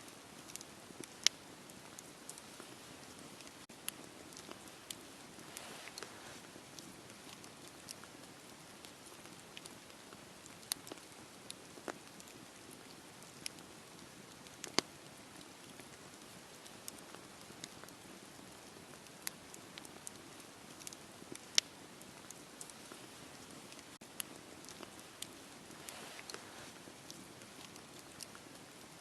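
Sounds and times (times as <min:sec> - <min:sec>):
fire crackling and popping: 0:00.0 - 0:29.0
fire hissing: 0:00.3 - 0:09.9, 0:22.6 - 0:28.9.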